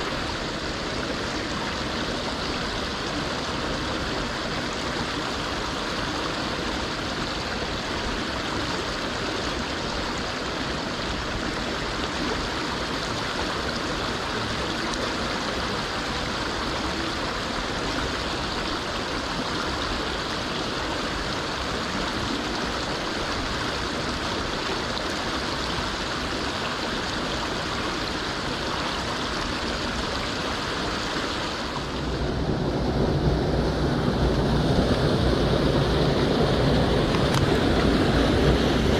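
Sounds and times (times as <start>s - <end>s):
stream rushing over rocks: 0.0s - 38.9s
low rumble: 31.6s - 38.9s.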